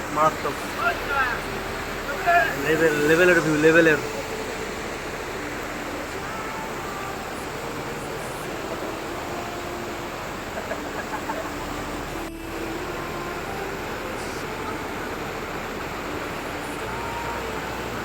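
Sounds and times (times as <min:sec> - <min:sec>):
mountain river rushing: 0:00.0 - 0:18.0.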